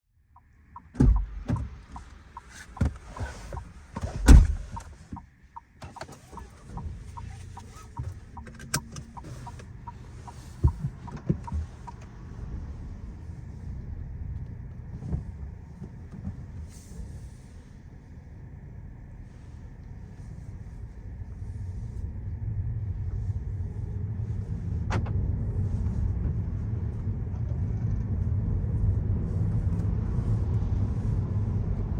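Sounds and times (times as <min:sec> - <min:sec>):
car engine rumbling: 0:00.2 - 0:31.9
knocks and thumps in car cabin: 0:00.8 - 0:12.0.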